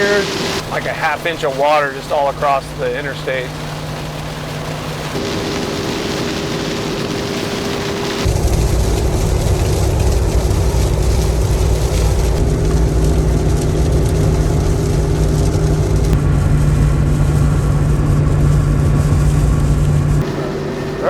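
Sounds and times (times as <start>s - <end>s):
hiss of wet road: 0.0s - 1.4s
car engine drone: 0.0s - 21.0s
tyre and wind rumble: 3.7s - 21.0s.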